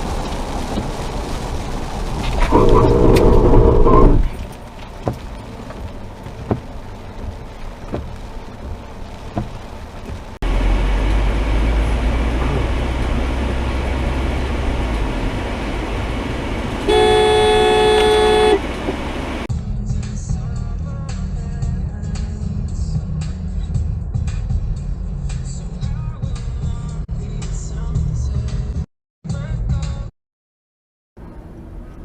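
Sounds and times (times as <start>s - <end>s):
low vehicle rumble: 0.0s - 19.5s
road noise: 0.0s - 19.5s, 31.2s - 32.0s
car horn blast: 2.5s - 4.2s, 16.6s - 19.5s.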